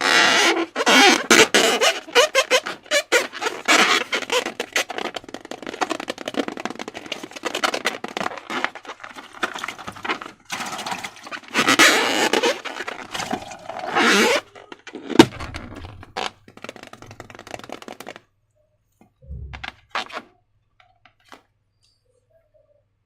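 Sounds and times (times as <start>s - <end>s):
slime and balloons crackling: 0.0s - 18.3s
sharp knock: 19.2s - 19.8s
soft low thump: 19.2s - 19.9s.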